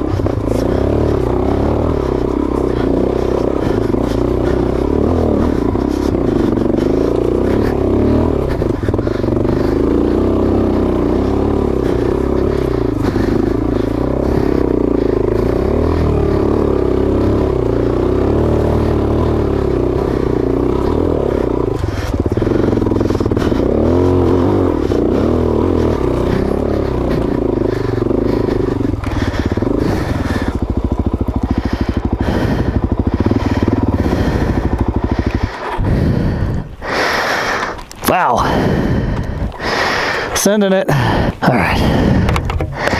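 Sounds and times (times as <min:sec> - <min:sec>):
motorcycle engine revving: 0:00.0 - 0:42.9
clattering and scraping knocks: 0:42.1 - 0:42.9.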